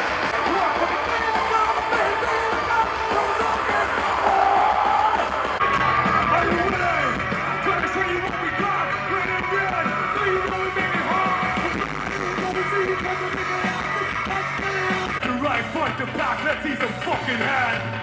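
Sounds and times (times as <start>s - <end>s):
person singing: 0.1s - 18.0s
live band music: 5.6s - 18.0s.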